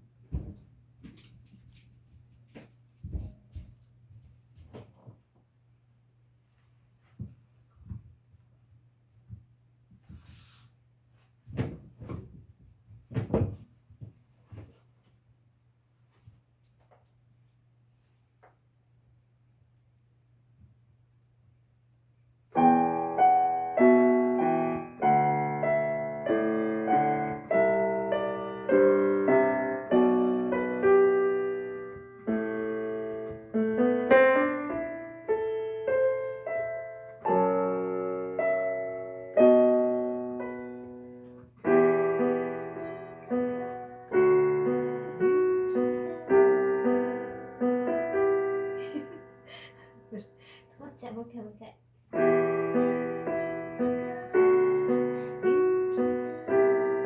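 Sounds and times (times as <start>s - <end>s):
slow piano chords and melody: 22.5s - 50.4s, 52.1s - 57.0s.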